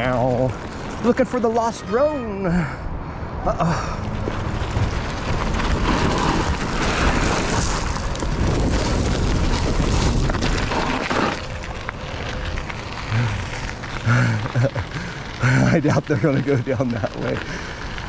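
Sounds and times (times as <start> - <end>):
wind buffeting microphone: 2.9 - 16.6.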